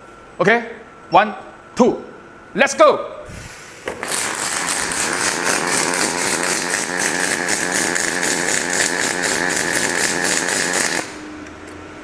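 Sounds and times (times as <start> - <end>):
arc welding buzzing crackle: 3.3 - 11.5.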